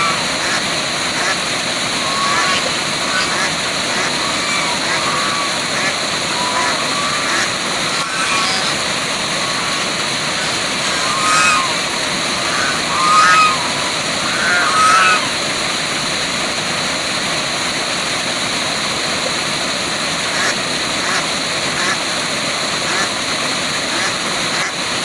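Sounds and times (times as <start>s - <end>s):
waterfall rushing: 0.0s - 25.0s
short animal calls: 2.0s - 15.6s.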